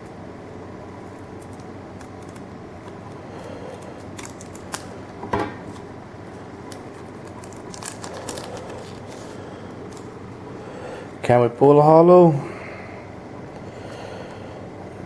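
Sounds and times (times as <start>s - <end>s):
steady low hum: 0.0s - 15.0s
foil wrapper crinkling: 1.2s - 10.2s.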